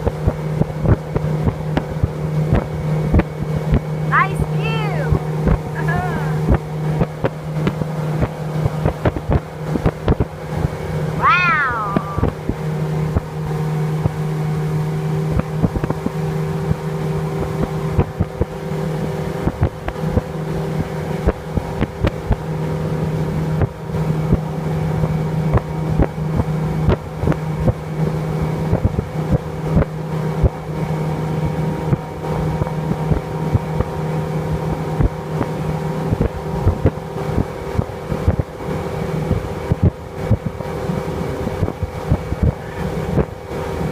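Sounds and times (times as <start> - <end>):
motorboat engine droning: 0.0 - 43.9
high cry: 11.2 - 12.4.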